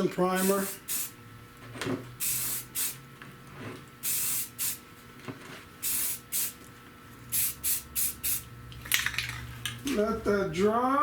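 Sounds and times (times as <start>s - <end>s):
spray can bursts: 0.4s - 1.2s, 2.2s - 3.0s, 4.0s - 4.8s, 5.8s - 6.6s, 7.3s - 8.5s.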